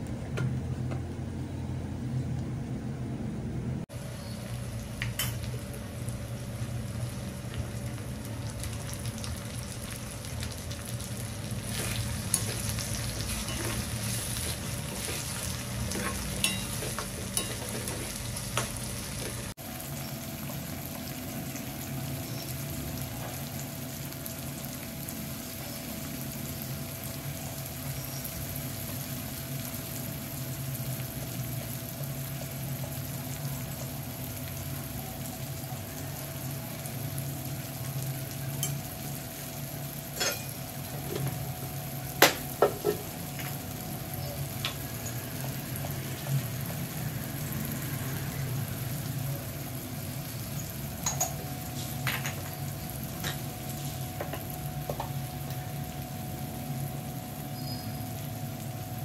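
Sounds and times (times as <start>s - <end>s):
food sizzling in a pan: 3.9s - 59.0s.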